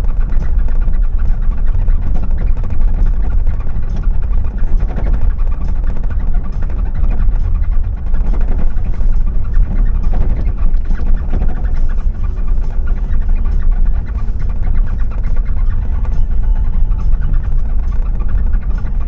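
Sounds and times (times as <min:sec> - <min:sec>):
car engine and tyre rumble: 0:00.0 - 0:19.0
rattles and knocks: 0:00.0 - 0:19.0.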